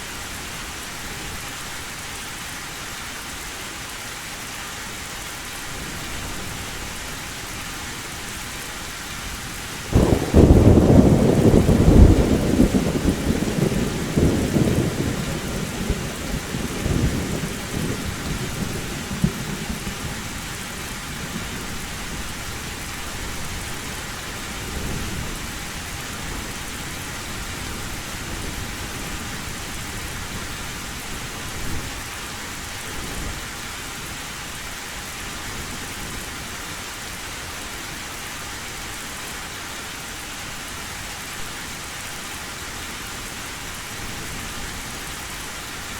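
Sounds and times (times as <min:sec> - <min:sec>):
heavy rain on a tin roof: 0:00.0 - 0:45.9
thunder rumbling: 0:09.9 - 0:23.9.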